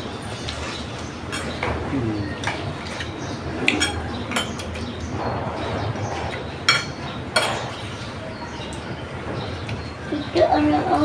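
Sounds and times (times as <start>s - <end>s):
dishes and utensils clinking: 0.3s - 1.8s, 6.1s - 8.1s.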